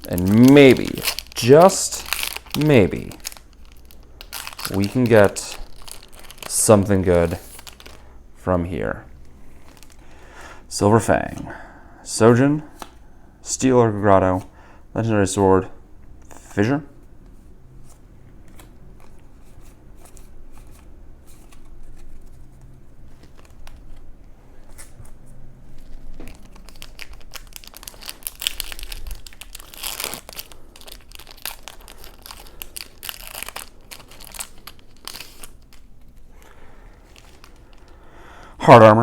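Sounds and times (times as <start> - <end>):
cards being handled: 0.0 - 8.0, 16.2 - 38.0
foil wrapper crinkling and tearing: 0.0 - 8.1, 9.6 - 10.0, 23.1 - 24.1, 25.7 - 38.2.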